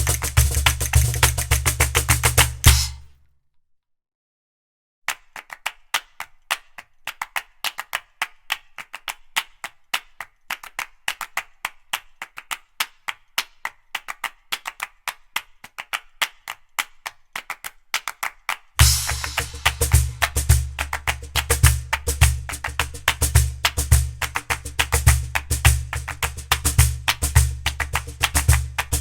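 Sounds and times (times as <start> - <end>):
sharp percussive clicks: 0.0 - 3.1, 18.8 - 29.0.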